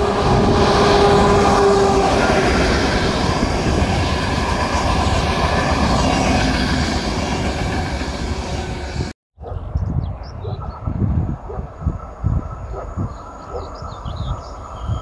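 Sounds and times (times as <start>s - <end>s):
train wheels rumbling on rails: 0.0s - 9.2s.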